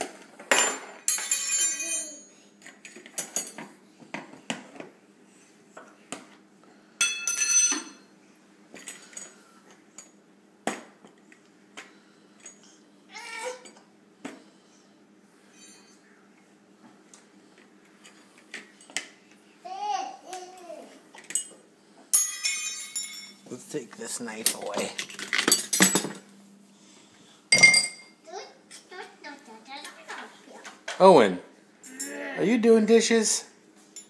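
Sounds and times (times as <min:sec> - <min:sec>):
cutlery clinking and rattling: 0:00.5 - 0:03.6, 0:24.5 - 0:26.2.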